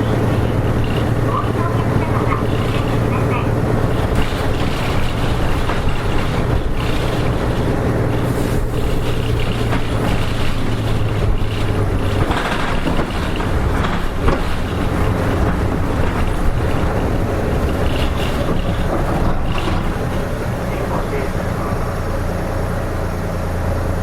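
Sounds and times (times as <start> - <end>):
bus diesel engine humming: 0.0 - 24.0
road and rattle noise: 0.0 - 24.0.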